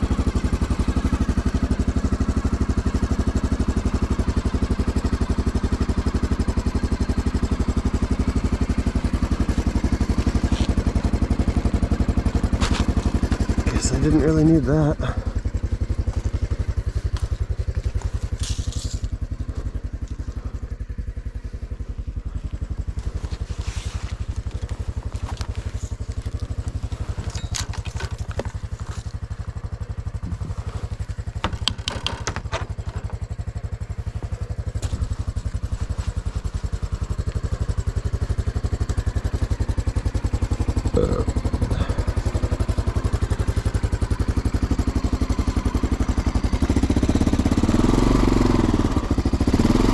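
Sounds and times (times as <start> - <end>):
small engine running: 0.0 - 49.9
clatters and knocks: 23.2 - 29.4, 30.3 - 33.5.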